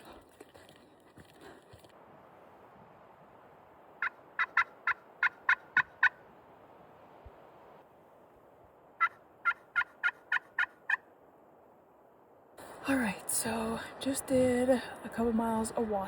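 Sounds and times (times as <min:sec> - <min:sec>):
turkey call yelps: 0:04.0 - 0:06.2, 0:09.0 - 0:11.1.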